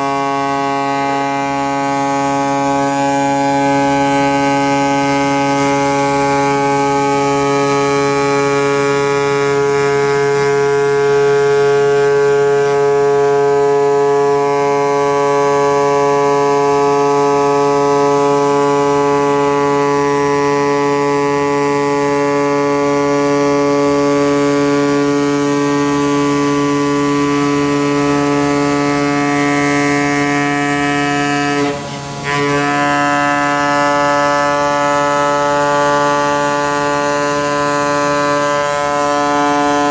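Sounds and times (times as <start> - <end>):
cutting machine buzzing hum: 23.9 - 39.9.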